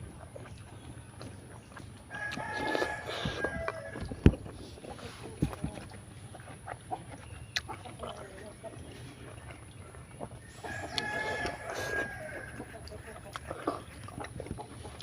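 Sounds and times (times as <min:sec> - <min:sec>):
sharp clicks of eating: 0:00.0 - 0:15.0
rooster crowing: 0:02.1 - 0:04.1, 0:10.5 - 0:12.7.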